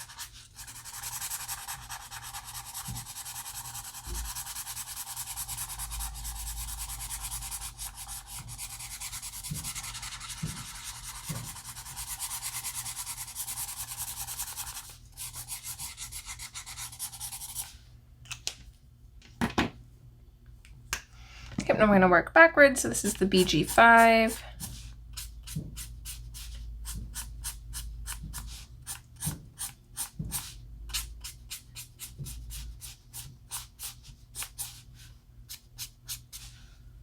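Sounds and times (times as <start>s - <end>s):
marker rubbing on paper: 0.0s - 17.7s, 22.9s - 34.9s.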